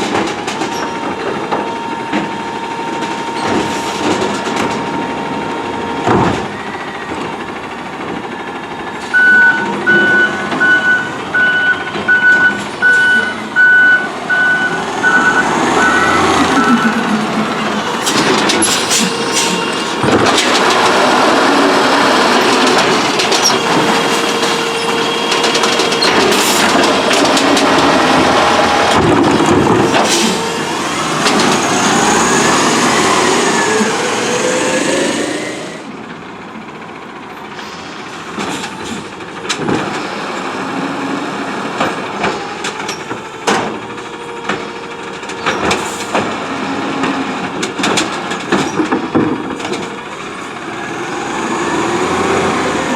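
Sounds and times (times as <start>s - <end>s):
truck engine and hydraulics: 0.0s - 52.9s
hydraulic whining tones: 9.0s - 36.0s.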